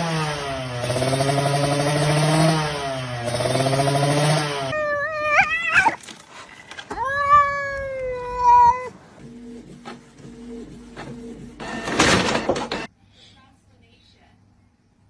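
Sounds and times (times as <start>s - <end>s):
cat meowing: 4.7s - 6.2s, 6.9s - 9.1s.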